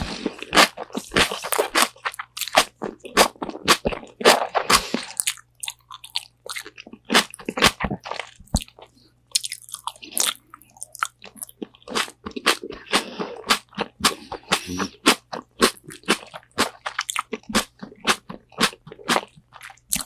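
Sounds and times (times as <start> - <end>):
crunchy bites and chewing: 0.0 - 20.0.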